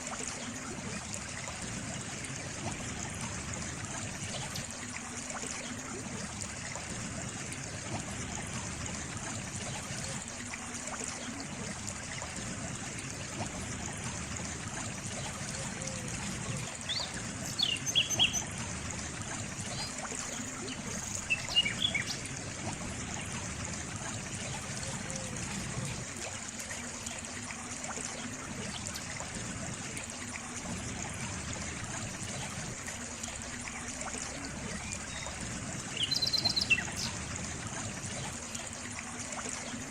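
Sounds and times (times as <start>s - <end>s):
water trickling: 0.0s - 39.9s
bird chirping: 16.9s - 18.5s.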